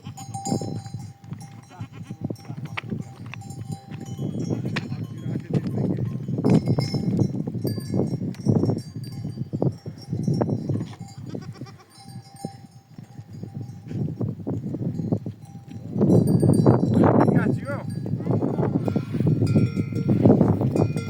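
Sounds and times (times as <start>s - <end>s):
livestock noises: 0.0s - 4.8s, 10.8s - 13.3s, 17.4s - 21.0s
goat bells clinking: 0.0s - 21.0s.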